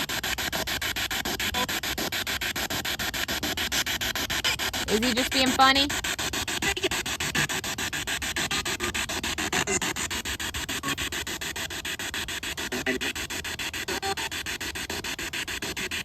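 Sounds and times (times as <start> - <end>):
pulsing radio static: 0.0 - 16.0.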